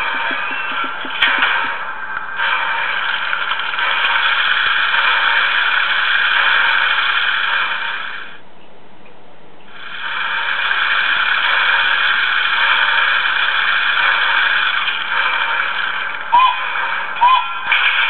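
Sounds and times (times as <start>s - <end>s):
hissing rush from small speaker: 0.0s - 8.4s, 9.7s - 18.0s.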